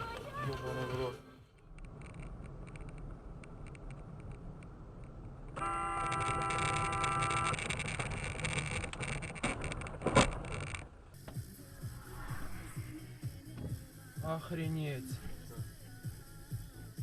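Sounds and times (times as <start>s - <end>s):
traffic noise: 0.0s - 14.2s
car horn: 5.6s - 7.6s.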